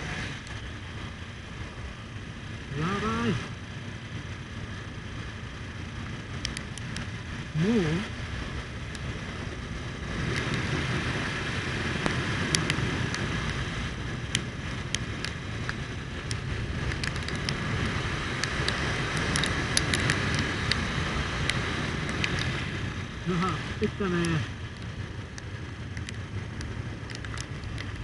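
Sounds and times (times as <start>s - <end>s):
motorcycle engine rumble: 0.0s - 28.0s
wind noise: 0.0s - 28.0s
raindrops ticking on microphone: 11.9s - 28.0s.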